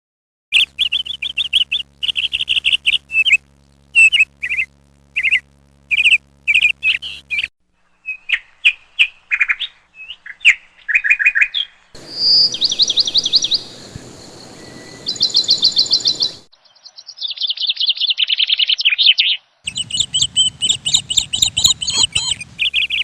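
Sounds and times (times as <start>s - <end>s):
sparrows chirping: 0.5s - 3.4s, 4.0s - 23.0s
faint steady hum: 0.6s - 10.0s, 11.9s - 16.5s.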